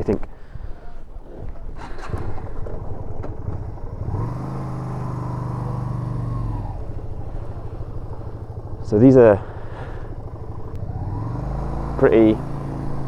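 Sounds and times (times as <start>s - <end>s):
motorcycle engine revving: 0.8s - 13.0s.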